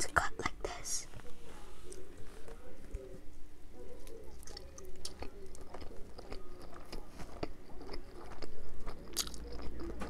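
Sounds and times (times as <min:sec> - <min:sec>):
chewing and biting: 0:04.0 - 0:10.0.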